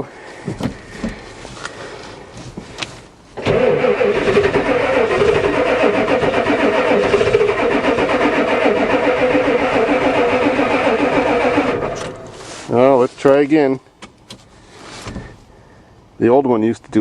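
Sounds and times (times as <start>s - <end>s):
starter motor cranking engine: 3.4s - 12.4s.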